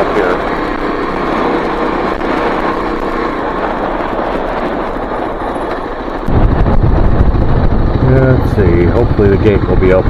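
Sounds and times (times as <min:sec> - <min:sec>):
motorcycle engine running: 0:00.0 - 0:10.0
ride noise: 0:00.0 - 0:10.0.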